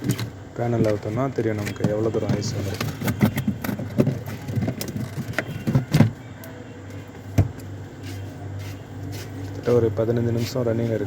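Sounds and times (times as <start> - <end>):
fridge compressor hum: 0.0 - 11.0.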